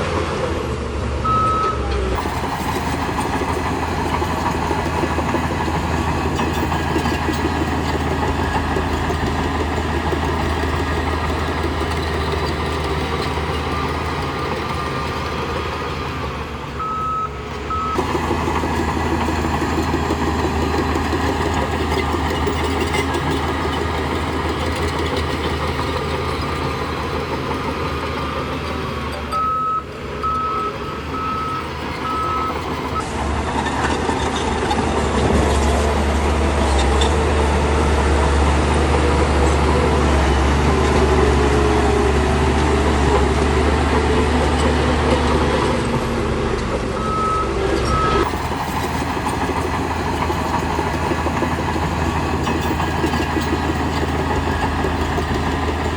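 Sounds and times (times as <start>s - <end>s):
heavy diesel engines running: 0.0s - 55.9s
reversing alarm beeping: 1.2s - 5.7s, 16.8s - 18.3s, 29.2s - 33.0s, 47.0s - 49.2s.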